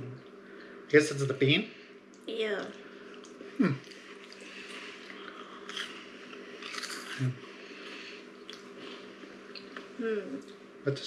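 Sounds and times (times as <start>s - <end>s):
steady low hum: 0.0s - 11.0s
person chewing crunchy crackers: 3.1s - 7.4s.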